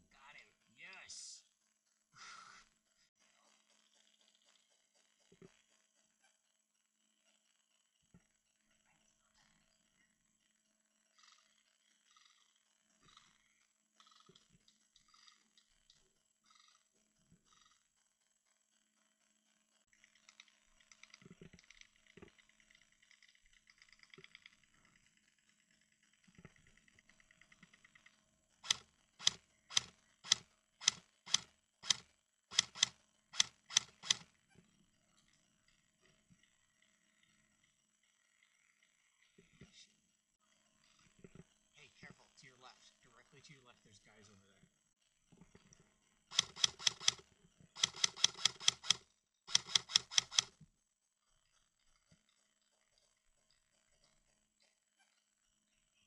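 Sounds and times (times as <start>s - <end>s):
airsoft gun rapid shots: 28.6s - 34.2s, 46.3s - 47.2s, 47.8s - 50.5s.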